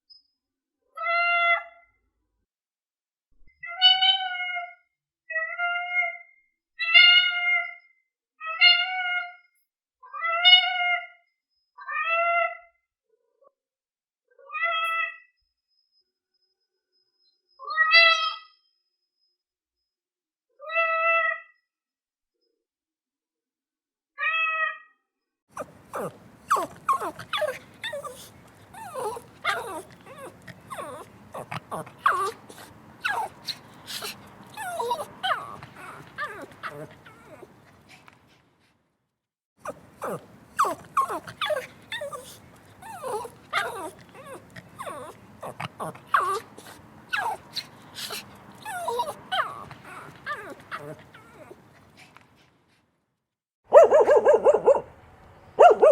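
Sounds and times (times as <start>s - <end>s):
dog whimpering and yipping: 25.5s - 38.1s, 39.6s - 52.2s
cat meowing: 25.6s - 37.5s.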